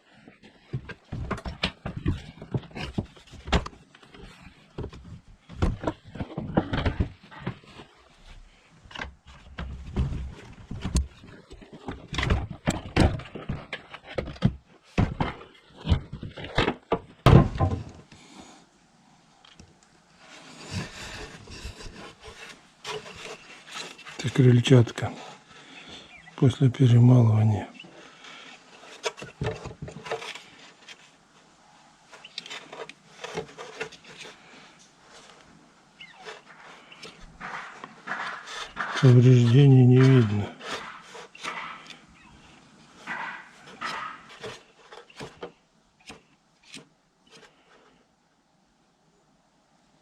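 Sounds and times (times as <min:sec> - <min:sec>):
plastic parts knocking: 0:00.6 - 0:07.9, 0:08.9 - 0:18.0, 0:28.8 - 0:31.0, 0:36.2 - 0:46.2.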